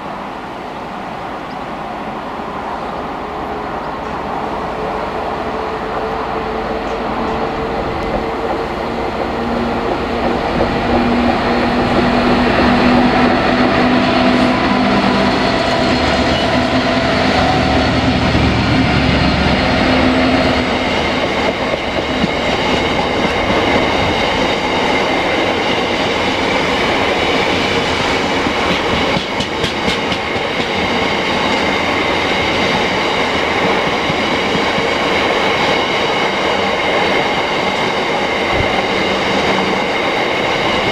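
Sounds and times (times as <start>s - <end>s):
locomotive engine humming: 0.0s - 40.9s
wagons rumbling on rails: 0.0s - 40.9s
wheels clicking over rail joints: 20.9s - 40.9s.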